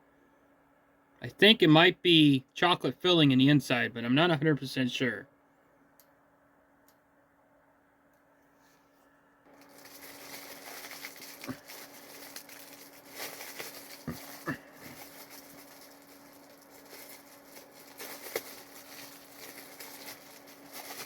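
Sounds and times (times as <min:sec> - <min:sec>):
food wrapper crinkling: 0:09.5 - 0:21.0.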